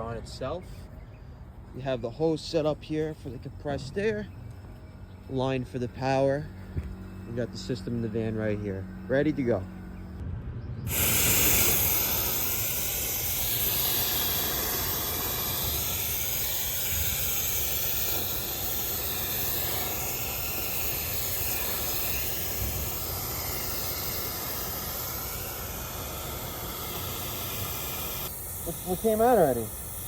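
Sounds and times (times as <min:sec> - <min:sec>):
compressed air hissing through hose: 0:10.9 - 0:30.0.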